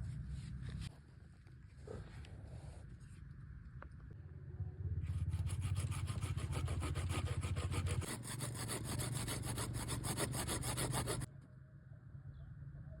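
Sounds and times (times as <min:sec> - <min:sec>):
wood being sawn: 0:05.4 - 0:11.3.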